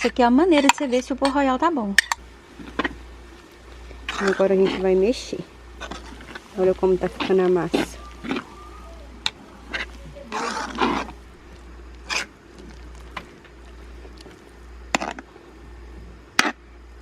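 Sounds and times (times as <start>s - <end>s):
low hum: 0.0s - 17.0s
utensil stirring batter in bowl: 2.0s - 15.3s.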